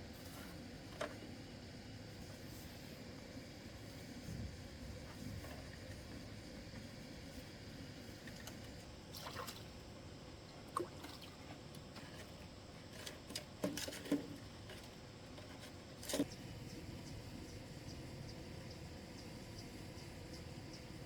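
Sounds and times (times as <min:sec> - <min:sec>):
water splashes and drips: 0:08.3 - 0:09.8, 0:10.6 - 0:11.8.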